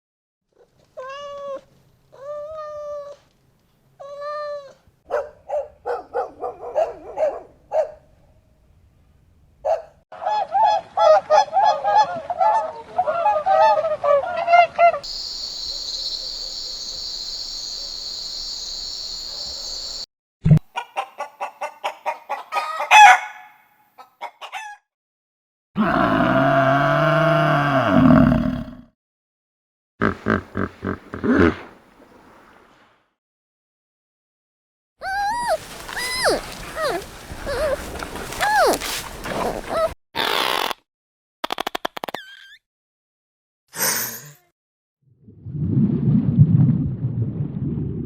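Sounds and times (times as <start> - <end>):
steady hiss: 15.1 - 20.0
poultry calling: 35.0 - 39.9.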